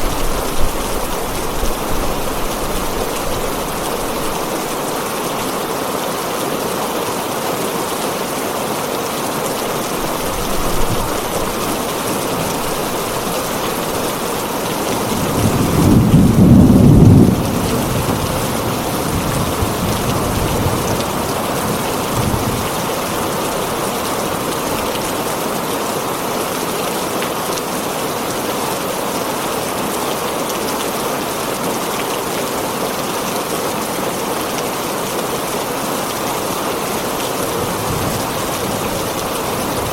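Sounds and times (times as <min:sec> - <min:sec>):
heavy rain on a tin roof: 0:00.0 - 0:39.9
thunder: 0:15.1 - 0:21.1.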